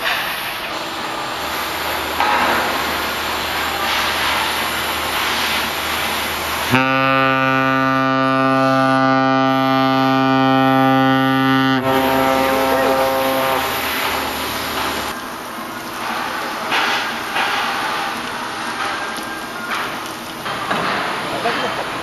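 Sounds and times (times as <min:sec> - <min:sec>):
engine noise: 0:00.0 - 0:22.0
wind: 0:00.0 - 0:22.0
ship's horn blast: 0:02.2 - 0:15.2.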